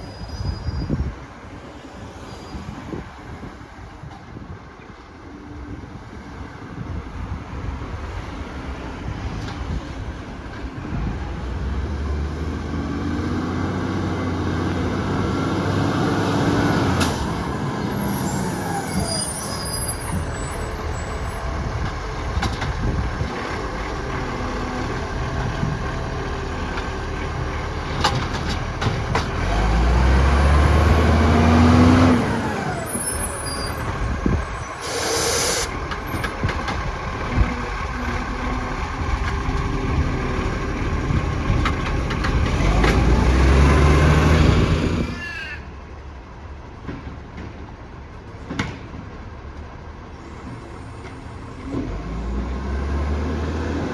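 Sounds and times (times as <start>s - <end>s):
diesel truck engine revving: 10.9s - 45.2s, 50.3s - 53.9s
air brake hiss: 34.7s - 35.8s.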